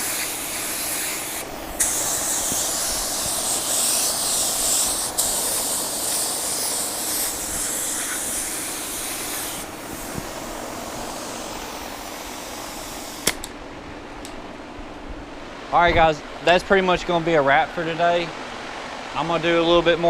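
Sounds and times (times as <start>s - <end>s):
paint spray gun hissing: 0.0s - 13.5s
sharp click: 13.2s - 13.6s.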